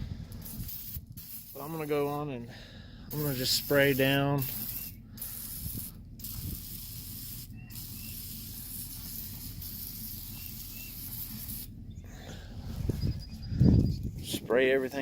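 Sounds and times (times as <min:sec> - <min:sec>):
aerosol can spraying hiss: 0:00.4 - 0:02.2, 0:03.1 - 0:11.7.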